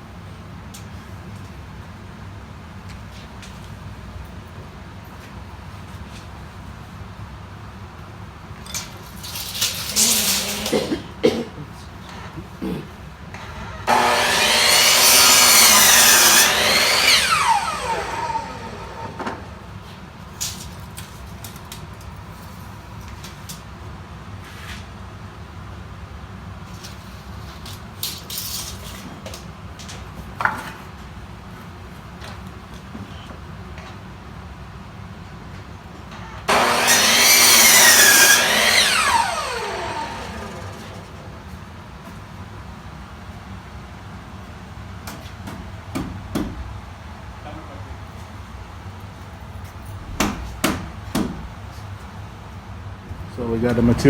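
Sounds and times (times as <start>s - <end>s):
electric saw cutting wood: 9.9s - 10.8s, 13.8s - 19.7s, 36.4s - 41.5s.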